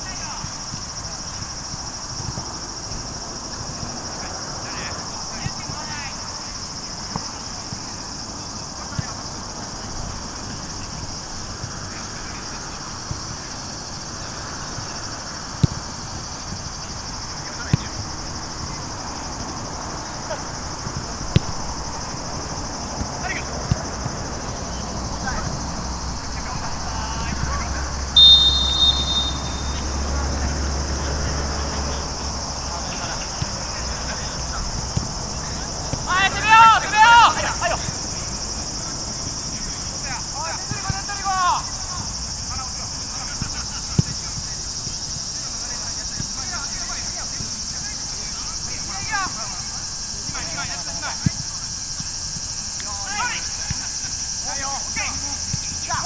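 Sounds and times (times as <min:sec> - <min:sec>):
high-pitched insect chorus trilling: 0:00.0 - 0:56.0
faint distant shouts: 0:22.5 - 0:43.6
referee's whistle blast: 0:28.2 - 0:30.0.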